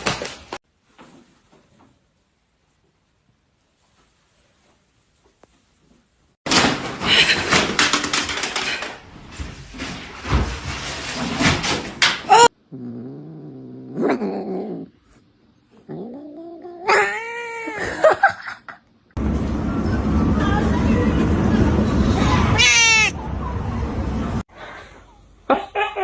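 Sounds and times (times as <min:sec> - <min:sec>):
cat meowing and yowling: 0:12.3 - 0:12.5, 0:16.0 - 0:18.2, 0:22.6 - 0:23.1.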